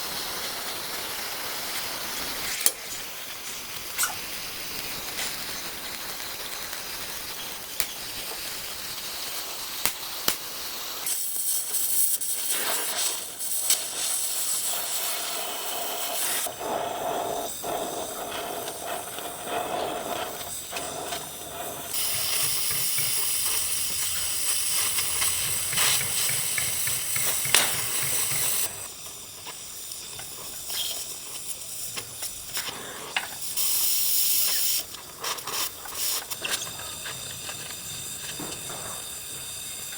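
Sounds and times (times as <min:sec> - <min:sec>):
air tools hissing: 0:00.0 - 0:39.9.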